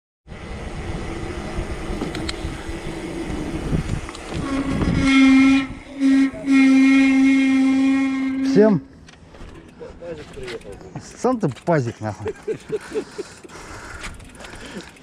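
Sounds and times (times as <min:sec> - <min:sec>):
wind and road noise: 0:00.3 - 0:15.0
horn blasts: 0:04.3 - 0:09.0.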